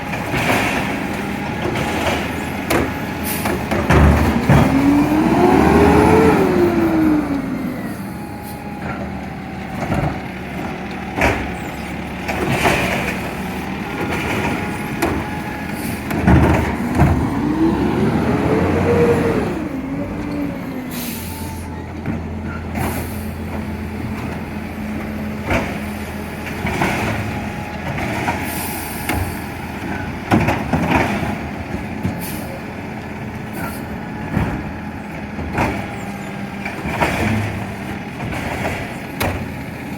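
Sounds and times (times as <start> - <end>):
garbage truck engine revving: 0.0 - 39.9
clanks and knocks: 0.1 - 5.0, 8.8 - 17.5, 29.1 - 32.2.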